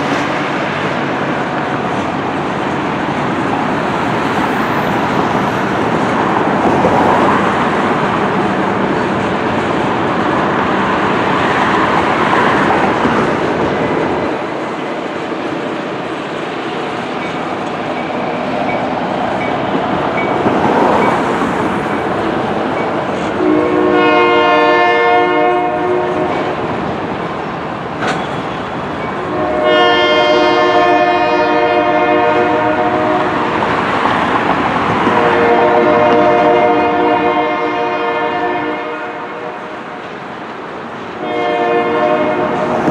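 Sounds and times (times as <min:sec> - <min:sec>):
wheels clacking over rail joints: 0:00.0 - 0:23.4, 0:26.2 - 0:29.8
locomotive air horn: 0:23.4 - 0:26.5, 0:29.2 - 0:33.5, 0:35.1 - 0:39.8, 0:41.2 - 0:42.8
freight cars rolling: 0:26.2 - 0:37.8.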